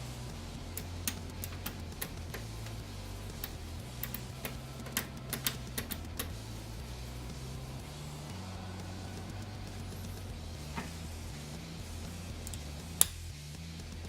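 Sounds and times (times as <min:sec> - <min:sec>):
low steady hum: 0:00.0 - 0:14.0
light irregular clicks and taps: 0:03.4 - 0:06.3.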